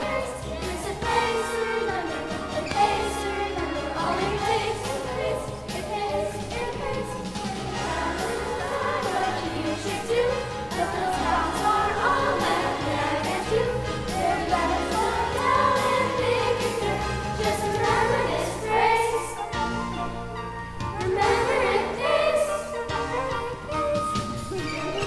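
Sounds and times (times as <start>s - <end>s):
group of voices singing: 0.0s - 19.7s, 21.0s - 24.0s
instrumental accompaniment with bass: 0.0s - 25.0s.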